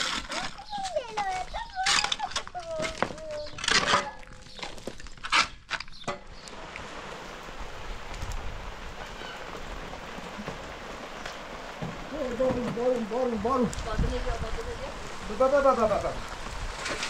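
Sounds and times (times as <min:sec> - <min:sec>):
steady rain falling: 0:06.3 - 0:17.0.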